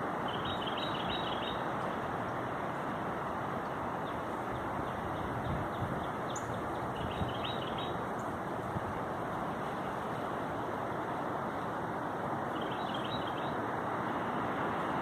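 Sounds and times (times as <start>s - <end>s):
rushing wind: 0.0s - 15.0s
small bird chirping: 0.3s - 1.6s, 4.9s - 8.0s, 12.5s - 13.6s.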